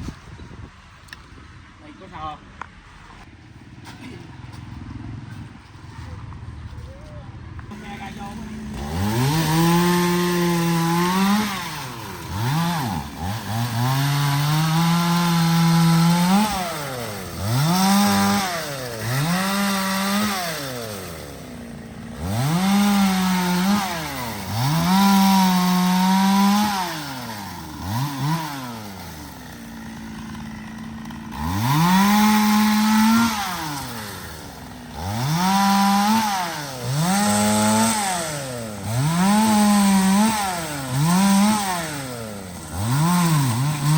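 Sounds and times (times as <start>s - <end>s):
chainsaw revving: 7.7s - 43.9s.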